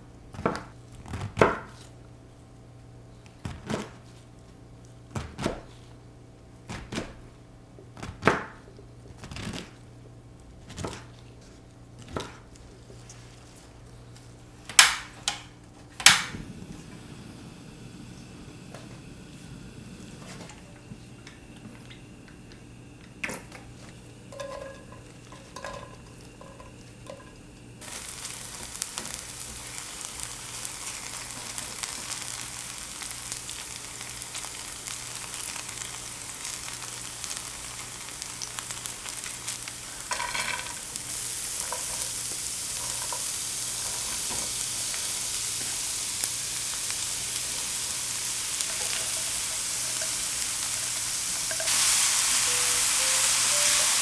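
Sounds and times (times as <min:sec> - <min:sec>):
food sizzling in a frying pan: 0:16.0 - 0:54.0.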